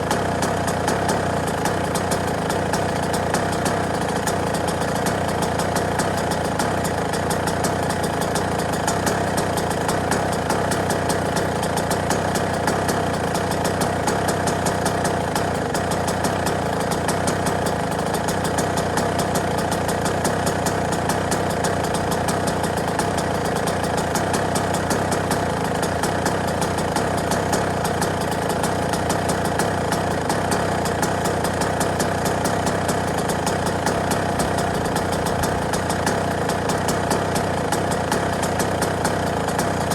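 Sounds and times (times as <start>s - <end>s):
two-stroke motorcycle idling: 0.0s - 39.9s.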